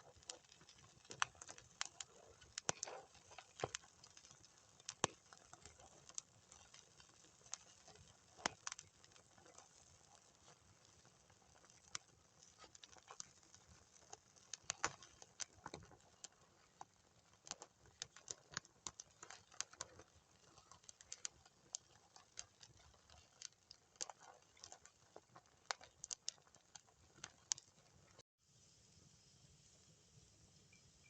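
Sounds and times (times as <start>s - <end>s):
campfire crackling and popping: 0.0s - 28.2s
faint hiss: 28.4s - 31.0s.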